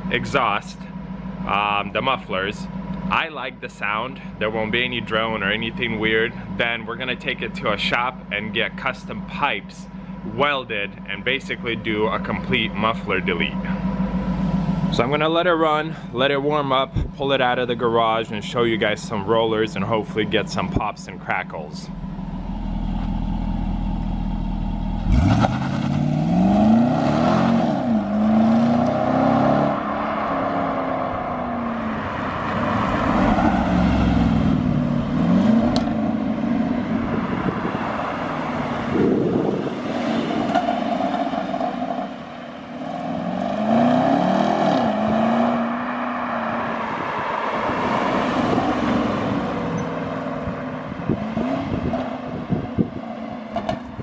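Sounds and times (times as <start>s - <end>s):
car engine revving: 18.6s - 54.0s.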